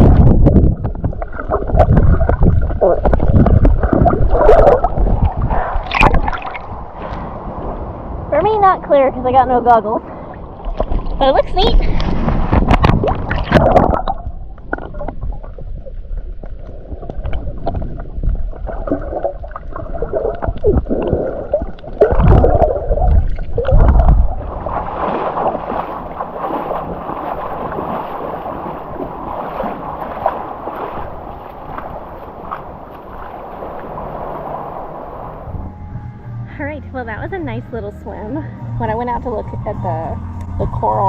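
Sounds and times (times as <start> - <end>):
water splashing: 0.0 - 35.7
muffled water sloshing and gurgling: 0.0 - 41.0
wind: 0.0 - 41.0.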